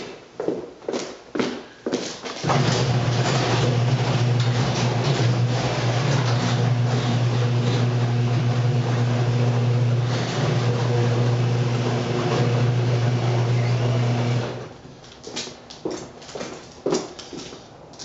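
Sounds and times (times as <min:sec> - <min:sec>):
garage door opener motor hum: 0:02.4 - 0:14.8.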